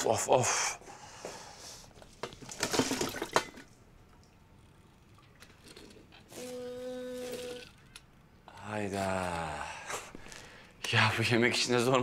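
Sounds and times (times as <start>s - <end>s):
water splashing into sink: 2.5s - 4.4s.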